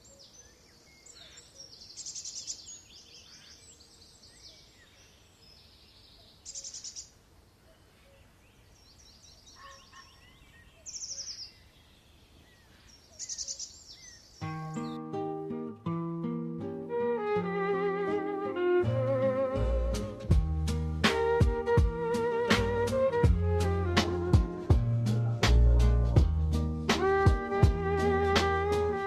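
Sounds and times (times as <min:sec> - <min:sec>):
songbirds trilling and chirping: 0:00.0 - 0:15.4
faint background noise: 0:00.0 - 0:29.0.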